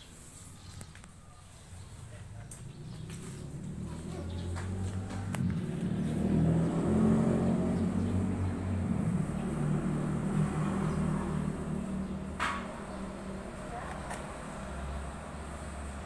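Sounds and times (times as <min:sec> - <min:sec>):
small engine revving: 0:02.2 - 0:12.4.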